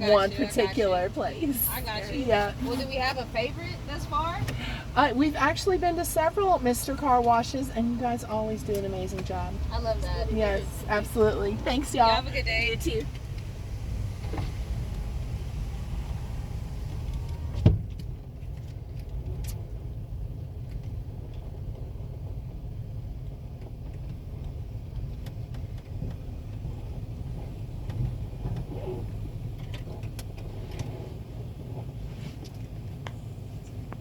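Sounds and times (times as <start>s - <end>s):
car engine idling: 0.0s - 34.0s
sharp thump: 17.5s - 18.0s.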